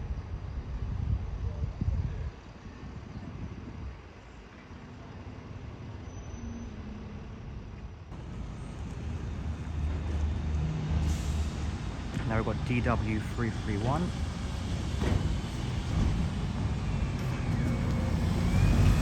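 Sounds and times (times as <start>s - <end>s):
bus engine drone: 0.0s - 19.0s
street traffic noise: 0.0s - 19.0s.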